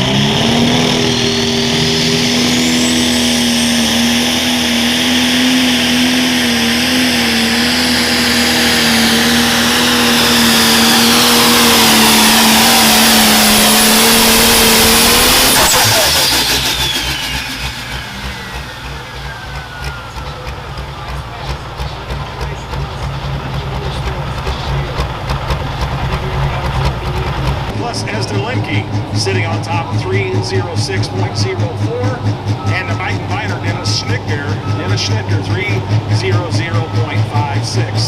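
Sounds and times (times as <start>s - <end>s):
high turbo whistle: 0.0s - 21.6s
diesel tractor engine at full throttle: 0.0s - 38.0s.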